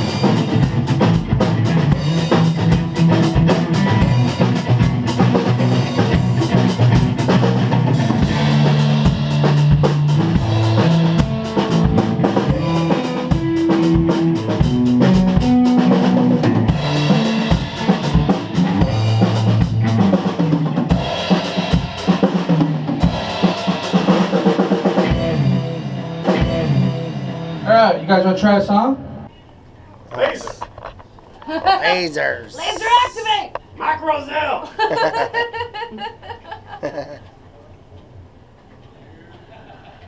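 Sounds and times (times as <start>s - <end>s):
drum kit beat: 0.0s - 28.8s.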